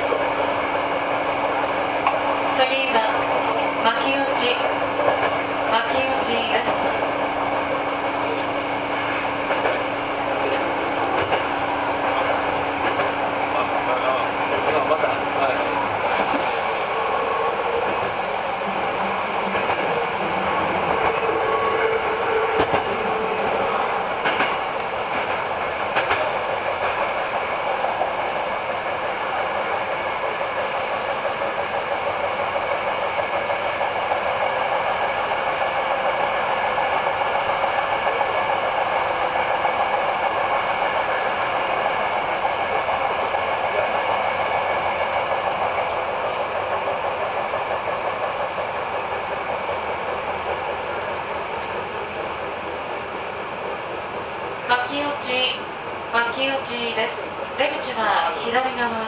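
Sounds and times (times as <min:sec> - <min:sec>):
train wheels rumbling on rail: 0:00.0 - 0:59.0
rail-joint clicks: 0:02.0 - 0:02.9, 0:03.5 - 0:06.9, 0:09.0 - 0:13.3, 0:14.5 - 0:27.2, 0:46.6 - 0:55.3.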